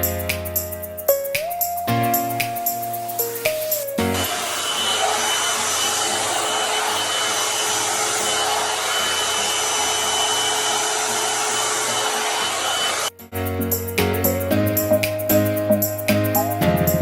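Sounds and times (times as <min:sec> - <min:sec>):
hair dryer blowing: 0:04.0 - 0:13.1.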